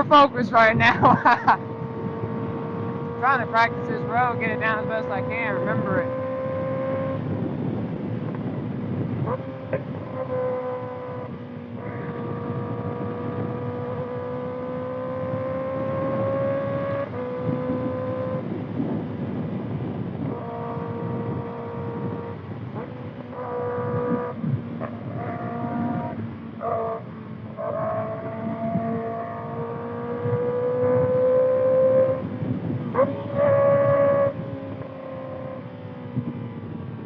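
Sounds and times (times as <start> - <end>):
motorcycle engine at high revs: 0.0 - 37.0
rushing wind noise: 0.0 - 37.0.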